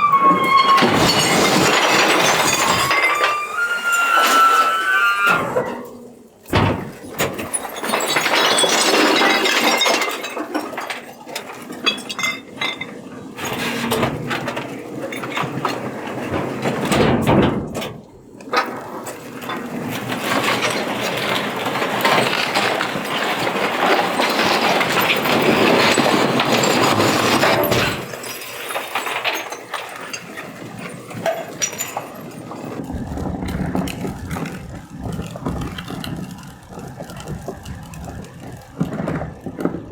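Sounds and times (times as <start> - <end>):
recyclables crashing and clinking: 0.0 - 39.9
truck engine running: 32.8 - 39.9.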